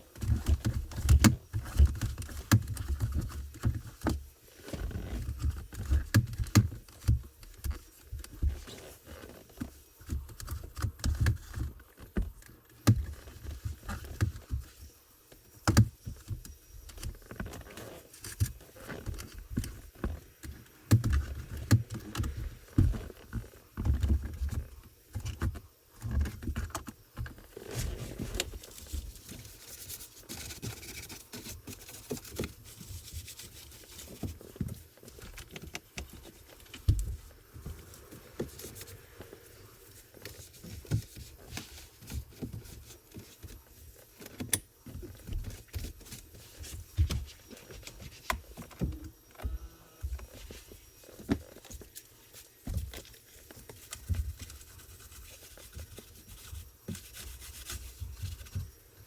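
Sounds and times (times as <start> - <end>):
rubbing and scraping: 17.0 - 49.3, 50.0 - 58.8.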